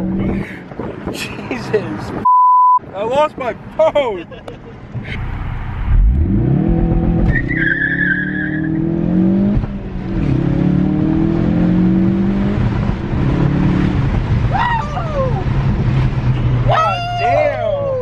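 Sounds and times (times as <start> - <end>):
car engine accelerating: 4.9 - 18.0
tyre squeal: 7.3 - 8.8.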